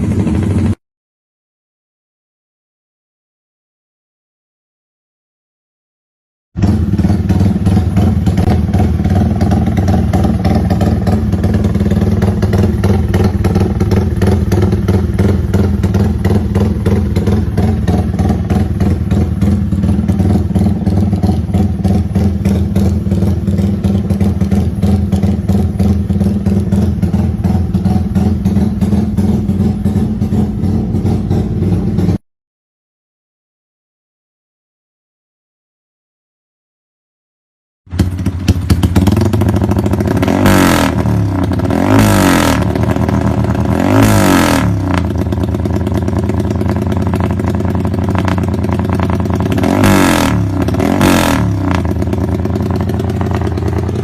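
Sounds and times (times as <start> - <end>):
motorcycle engine running: 0.0 - 0.8, 6.6 - 32.2, 37.9 - 54.0.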